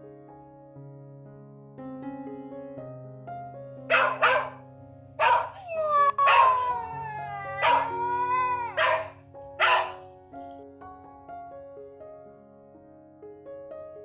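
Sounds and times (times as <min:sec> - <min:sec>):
background piano music: 0:00.0 - 0:14.0
dog barking: 0:03.8 - 0:04.6, 0:05.2 - 0:10.1
dog howling: 0:03.9 - 0:04.6, 0:05.2 - 0:10.1.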